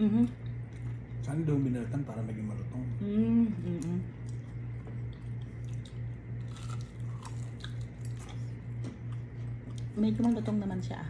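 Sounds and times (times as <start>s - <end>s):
crunchy chewing of fried shrimp: 0.3s - 1.3s, 3.8s - 10.4s.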